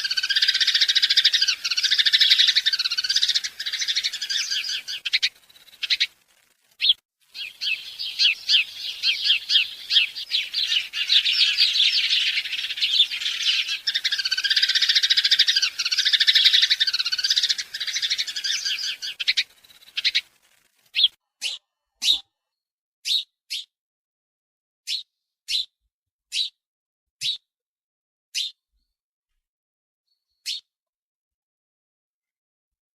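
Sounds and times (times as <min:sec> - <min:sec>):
birds chirping: 0:00.0 - 0:22.2.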